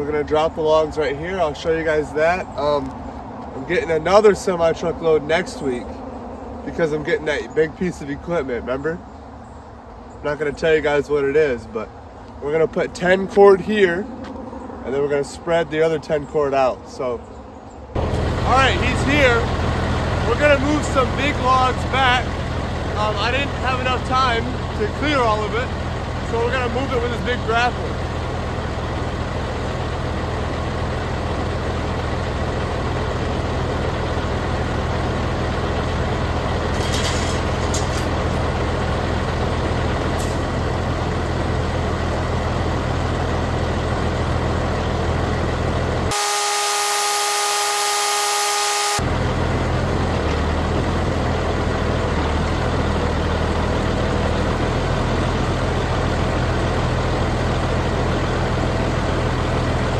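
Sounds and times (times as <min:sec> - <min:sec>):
heavy truck engine running: 0:00.0 - 0:13.3, 0:17.3 - 0:59.9
multi-pitch horn: 0:18.0 - 0:19.4, 0:46.1 - 0:49.4.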